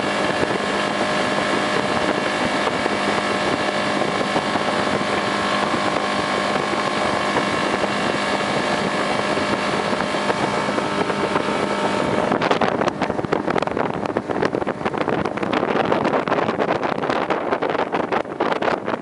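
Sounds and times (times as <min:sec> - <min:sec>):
boat motor running: 0:00.0 - 0:19.0
wind buffeting microphone: 0:00.0 - 0:19.0.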